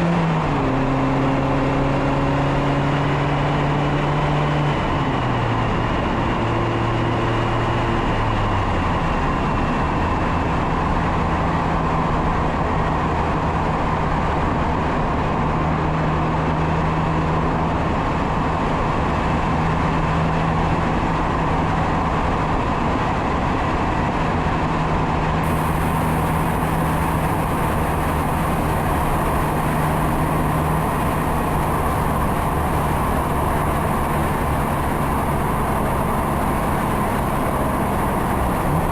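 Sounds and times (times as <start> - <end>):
car engine and exhaust: 0.0 - 38.9
heavy wind rush: 17.2 - 38.9.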